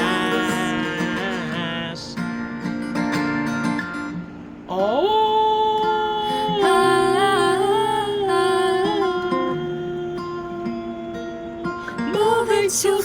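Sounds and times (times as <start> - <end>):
person singing a long note: 0.0 - 2.1, 4.7 - 13.0
strummed acoustic guitar: 0.0 - 13.0.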